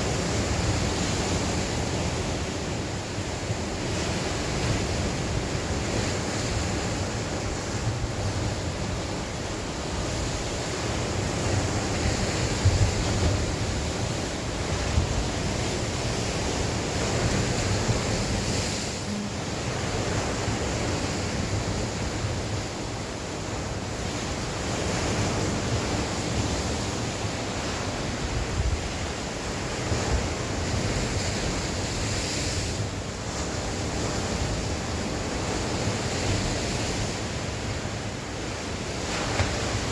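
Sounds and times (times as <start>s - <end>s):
sea waves breaking: 0.0s - 39.9s
wind buffeting microphone: 9.9s - 22.7s.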